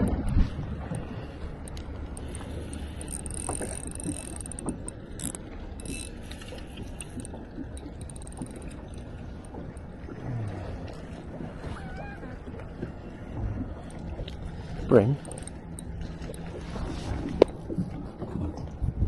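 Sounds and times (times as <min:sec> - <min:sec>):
fishing reel clicking and whirring: 0:01.4 - 0:09.6, 0:15.2 - 0:16.4.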